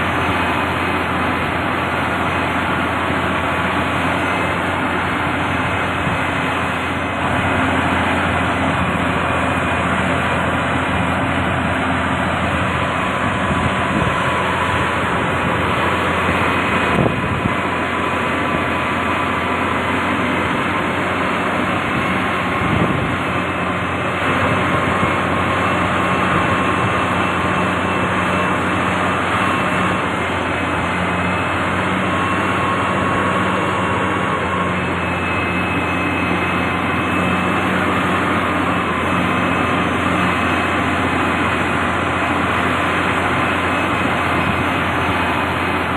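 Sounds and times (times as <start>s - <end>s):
heavy machinery engine drone: 0.0s - 45.9s.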